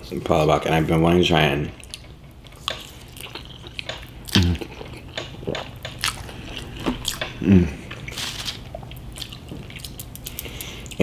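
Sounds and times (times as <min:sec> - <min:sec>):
person chewing noodles: 0:01.8 - 0:11.0
person humming mm: 0:07.4 - 0:07.9.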